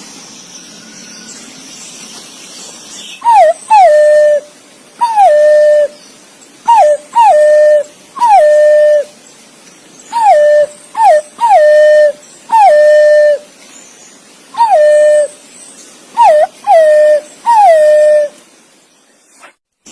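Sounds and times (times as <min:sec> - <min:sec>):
pigeon whistling calls: 0:03.2 - 0:04.4, 0:05.0 - 0:06.0, 0:06.7 - 0:09.1, 0:10.1 - 0:13.4, 0:14.6 - 0:15.3, 0:16.2 - 0:18.3.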